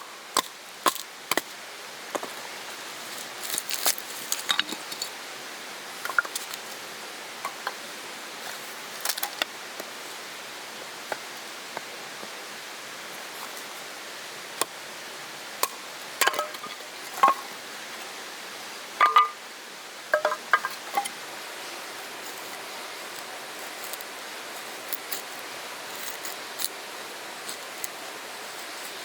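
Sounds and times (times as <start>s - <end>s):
mountain stream rushing: 0.0s - 29.0s
clinks and taps of small items: 4.3s - 5.1s, 15.6s - 17.5s, 19.0s - 19.4s, 20.2s - 21.1s.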